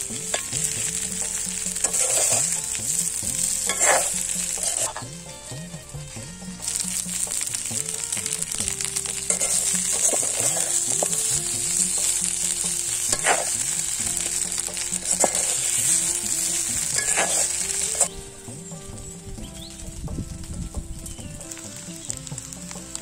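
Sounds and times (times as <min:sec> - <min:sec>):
metal spoon scraping a pan: 0:00.0 - 0:18.2
leaves sizzling in hot oil: 0:00.0 - 0:23.0.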